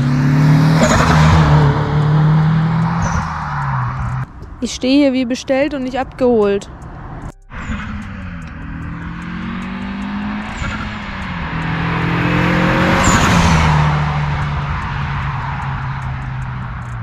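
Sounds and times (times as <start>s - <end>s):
car engine revving: 0.0s - 17.0s
loud turbo rushing noise: 6.8s - 16.7s.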